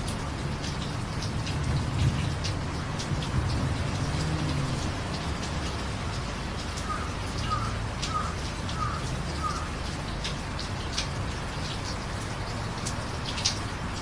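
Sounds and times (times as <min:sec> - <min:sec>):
drips on hard surfaces: 0:00.0 - 0:14.0
steady rain: 0:00.0 - 0:14.0
bird calls: 0:06.8 - 0:09.8.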